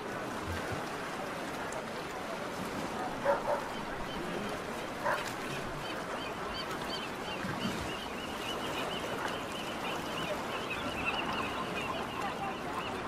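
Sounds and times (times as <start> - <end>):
continuous background noise: 0.0 - 13.0
birds calling: 3.2 - 13.0.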